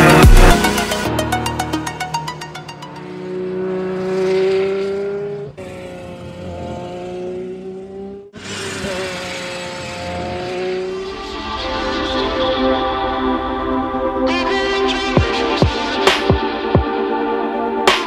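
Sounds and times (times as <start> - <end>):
car engine at high revs: 1.8 - 12.0.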